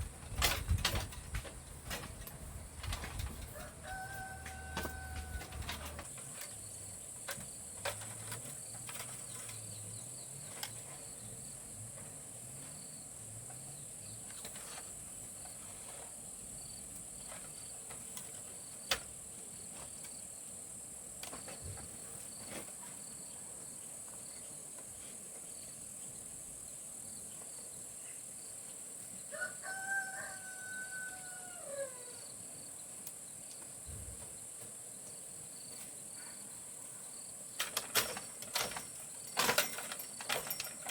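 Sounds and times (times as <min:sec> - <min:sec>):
rooster crowing: 0:03.5 - 0:06.0, 0:29.3 - 0:32.3.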